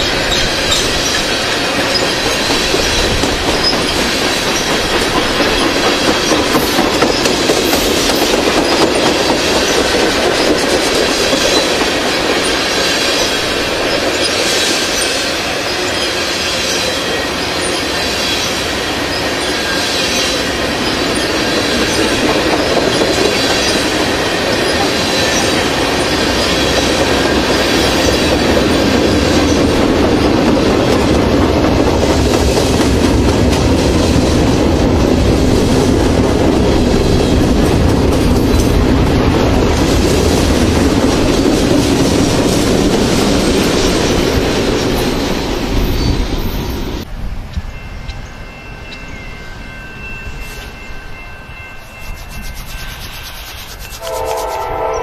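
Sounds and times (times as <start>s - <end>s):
high wheel squeal: 0.0s - 7.8s, 11.5s - 28.4s
rhythmic clickety-clack: 0.0s - 47.0s, 51.4s - 54.8s
freight train wheels on rails: 0.0s - 55.0s.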